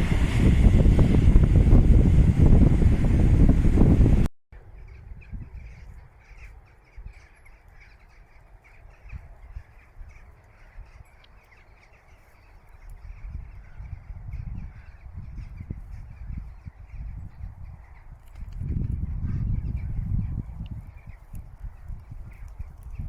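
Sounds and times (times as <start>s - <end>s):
low rumble: 0.0s - 4.3s.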